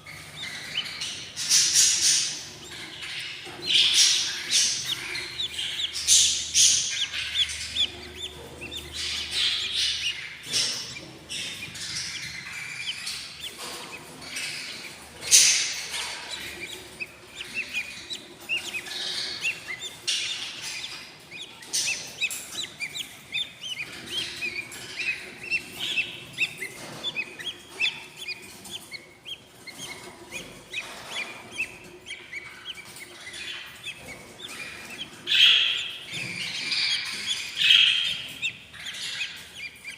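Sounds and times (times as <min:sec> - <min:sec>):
chicks chirping: 0:00.0 - 0:39.9.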